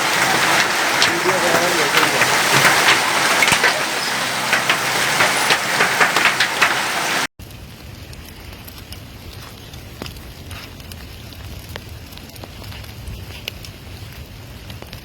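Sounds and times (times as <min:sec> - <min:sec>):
hailstones clicking: 0:00.0 - 0:07.3
heavy rain: 0:00.0 - 0:12.5.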